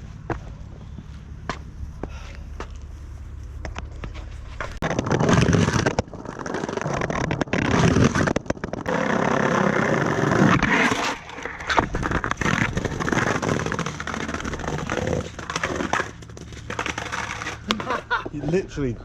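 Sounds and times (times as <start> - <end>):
skateboard wheels rumbling: 0.0 - 19.0
skateboard clicks and knocks: 3.7 - 18.3.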